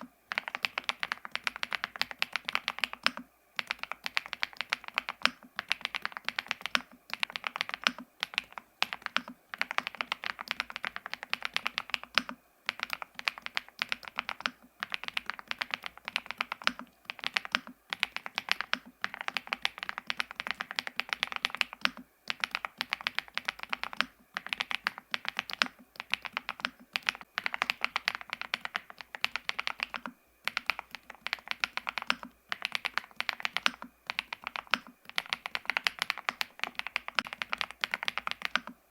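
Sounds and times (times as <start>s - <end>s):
mechanical keyboard typing: 0.3s - 38.8s.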